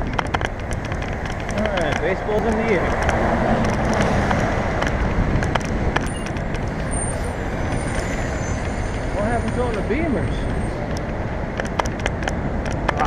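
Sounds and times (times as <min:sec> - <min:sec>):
vehicle engines passing: 0:00.0 - 0:13.0
wind on microphone: 0:00.0 - 0:13.0
faint high-pitched squeal: 0:06.1 - 0:10.8.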